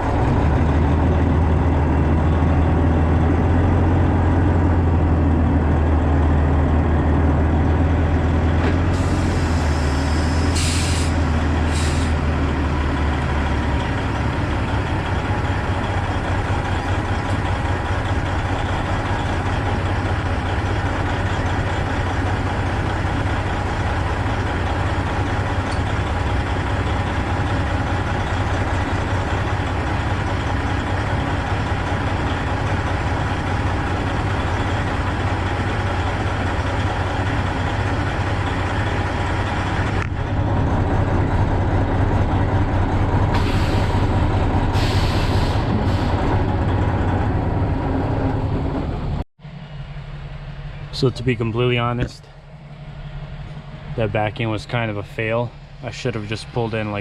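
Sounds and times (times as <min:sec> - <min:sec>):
truck diesel engine idling: 0:00.0 - 0:57.0
air brake hisses: 0:08.9 - 0:12.2, 0:43.3 - 0:46.2.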